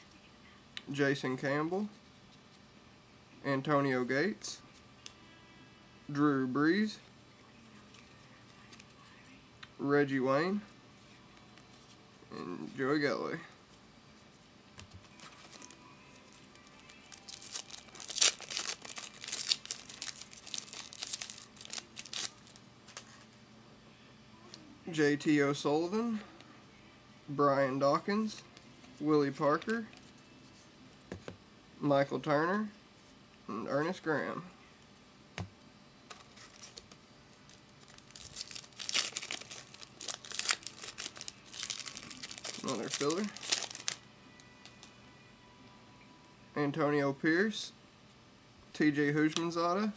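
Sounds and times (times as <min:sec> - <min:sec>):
foil wrapper crinkling and tearing: 0:16.8 - 0:23.2, 0:36.3 - 0:44.0.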